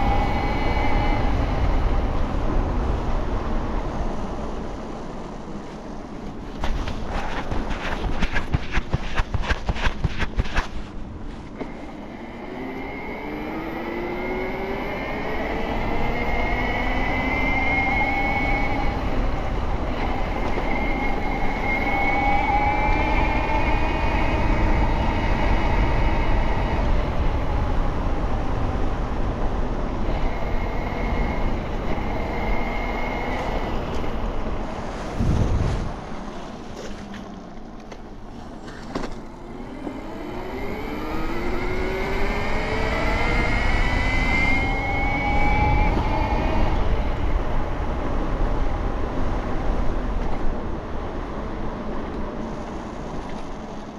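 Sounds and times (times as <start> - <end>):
electric bike motor whine: 0.0 - 3.0, 11.6 - 34.6, 39.3 - 48.8
wind rumble on microphone: 0.0 - 53.9.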